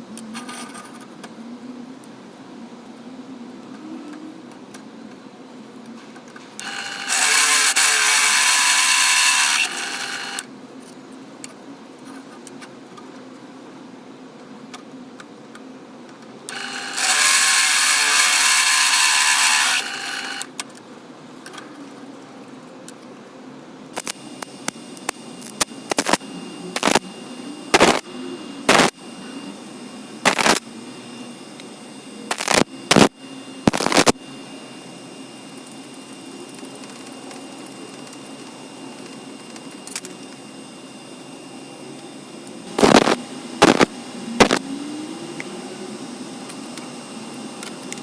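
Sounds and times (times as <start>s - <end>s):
belt grinder running: 6.6s - 10.5s, 16.5s - 20.5s, 25.9s - 26.2s, 26.8s - 27.0s, 27.7s - 28.9s, 30.2s - 30.6s, 32.3s - 33.1s.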